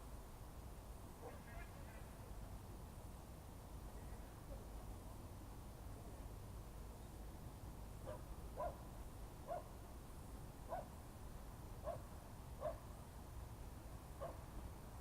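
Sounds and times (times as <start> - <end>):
dog barking faintly: 1.2 - 2.1, 8.0 - 8.9, 9.5 - 9.7, 10.7 - 10.9, 11.8 - 12.8, 14.2 - 14.5.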